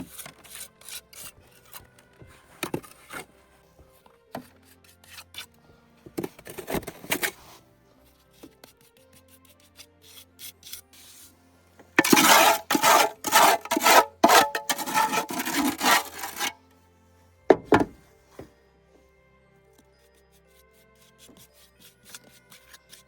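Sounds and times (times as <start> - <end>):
soft background music: 0.0 - 23.0
rough scraping strokes: 6.5 - 7.5, 12.0 - 16.6.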